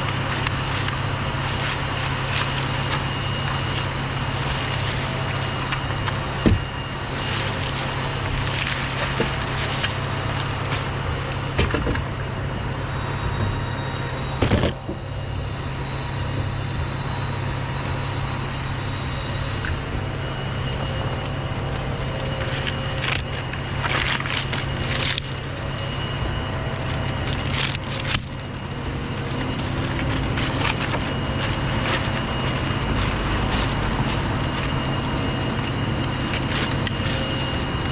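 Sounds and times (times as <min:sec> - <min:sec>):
engine drone: 0:00.0 - 0:37.9
wood cracking and snapping: 0:27.0 - 0:37.9.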